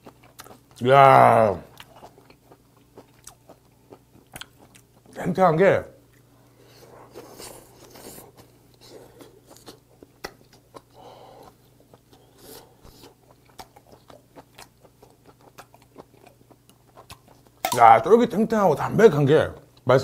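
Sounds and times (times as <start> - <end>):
person chewing wet mouth clicks: 0.0 - 0.8, 1.7 - 5.2, 12.8 - 17.8.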